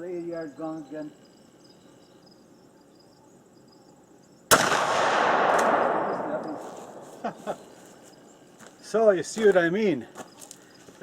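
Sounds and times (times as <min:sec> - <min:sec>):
shotgun shot with rolling echo: 0:04.5 - 0:07.9.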